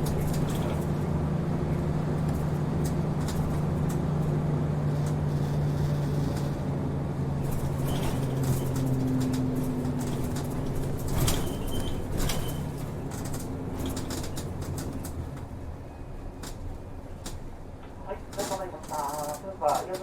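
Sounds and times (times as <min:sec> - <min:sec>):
bus engine droning: 0:00.0 - 0:20.0
light ticks and rattles: 0:07.4 - 0:15.5, 0:16.3 - 0:20.0.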